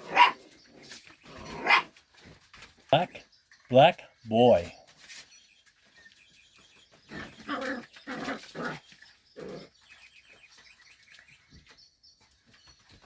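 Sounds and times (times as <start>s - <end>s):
puppies crying: 7.1s - 9.7s.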